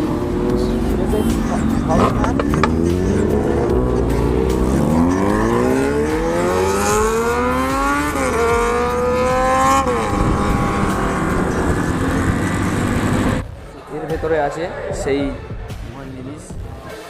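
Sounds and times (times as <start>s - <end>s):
motorcycle engine accelerating: 0.0s - 13.4s
road and wind rumble: 0.0s - 13.7s.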